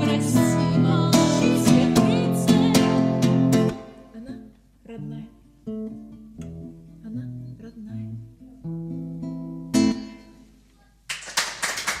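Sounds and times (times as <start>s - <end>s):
acoustic guitar picking: 0.0s - 4.2s, 5.4s - 10.5s
hand clapping: 11.1s - 12.0s.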